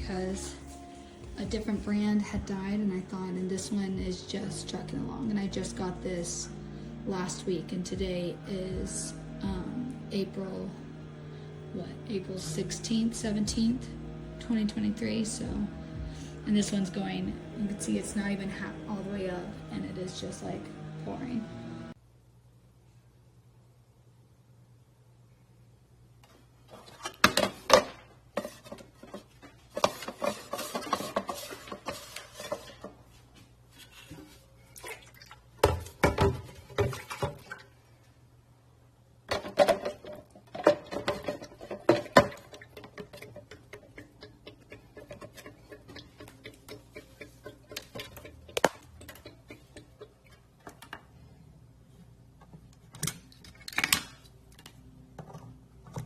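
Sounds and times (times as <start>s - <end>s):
hard objects knocking and clattering: 39.3s - 51.1s.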